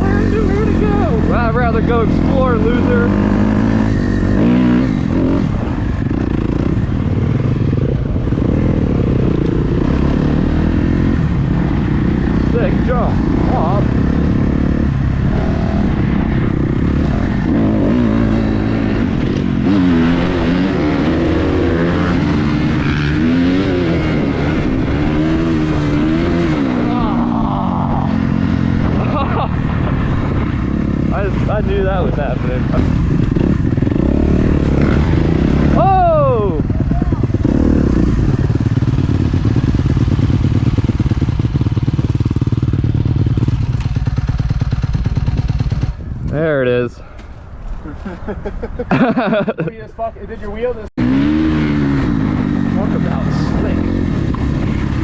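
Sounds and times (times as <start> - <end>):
dirt bike engine revving: 0.0 - 46.7, 51.0 - 55.0.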